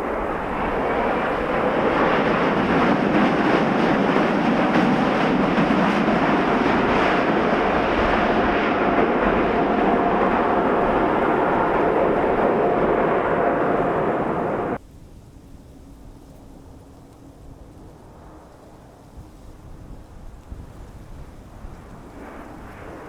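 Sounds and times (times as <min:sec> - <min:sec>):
jet airliner engines roaring: 0:00.0 - 0:14.8, 0:20.7 - 0:23.0.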